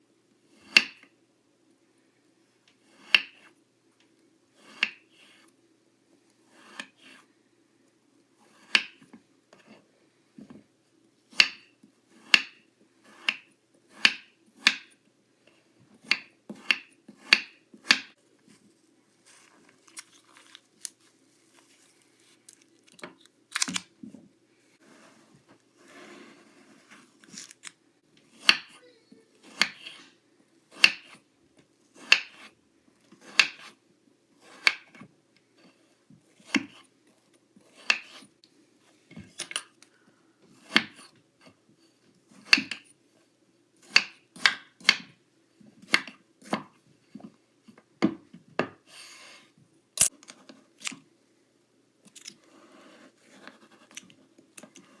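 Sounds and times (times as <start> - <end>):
soft scraping of sand: 24.8 - 27.2.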